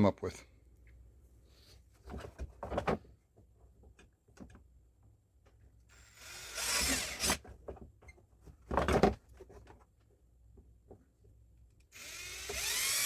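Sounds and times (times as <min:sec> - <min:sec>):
power drill running in short bursts: 0:06.0 - 0:07.4, 0:12.0 - 0:13.0.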